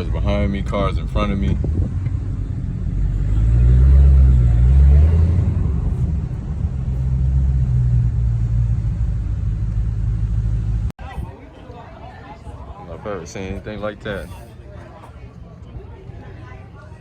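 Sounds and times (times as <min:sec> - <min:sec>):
car engine deep rumble: 0:00.0 - 0:11.0.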